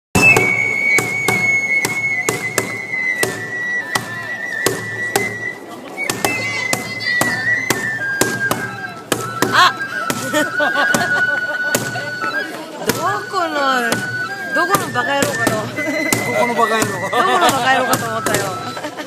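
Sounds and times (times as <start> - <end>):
sharp percussive strikes: 0.2 - 5.4, 6.1 - 10.3, 10.9 - 12.2.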